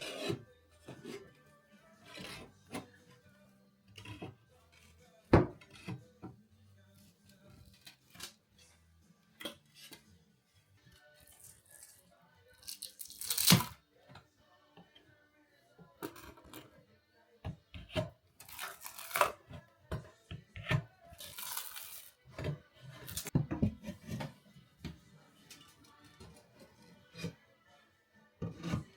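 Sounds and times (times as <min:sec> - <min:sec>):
material tearing by hand: 0:12.6 - 0:13.8, 0:18.4 - 0:19.4, 0:21.2 - 0:22.1.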